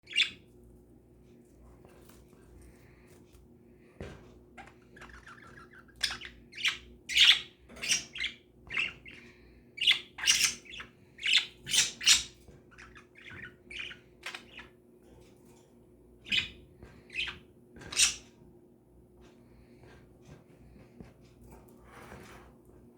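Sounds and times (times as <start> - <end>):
pet birds calling: 0.0 - 0.5, 4.6 - 14.8, 16.2 - 18.3.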